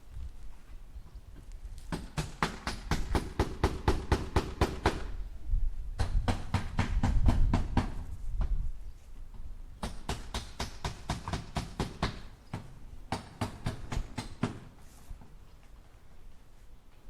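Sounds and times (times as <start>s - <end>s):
hammer driving nails into wood: 1.9s - 5.1s, 9.8s - 14.7s.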